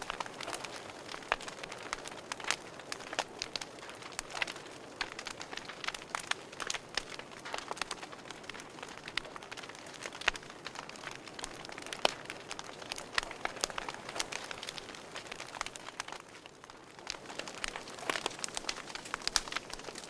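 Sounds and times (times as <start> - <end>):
fire popping and snapping: 0.0 - 20.0
fire hissing: 16.8 - 20.0.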